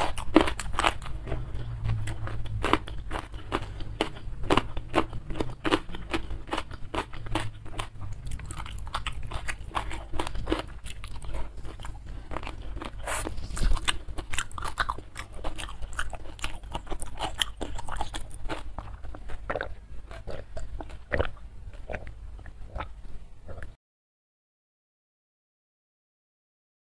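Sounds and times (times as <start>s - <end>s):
crunchy bites: 0.0s - 22.1s
wet chewing and mouth clicks: 0.0s - 23.8s
person sipping from a cup: 13.0s - 13.8s.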